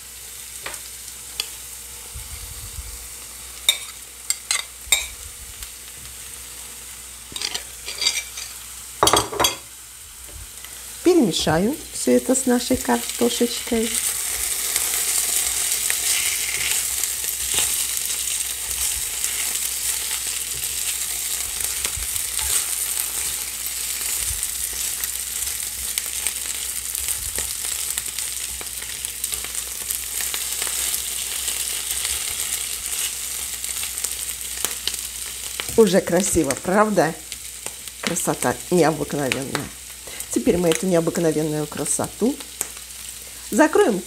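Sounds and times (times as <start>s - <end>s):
vegetables sizzling in oil: 0.0s - 44.0s
spatula scraping a pan: 7.3s - 8.6s, 14.0s - 34.1s.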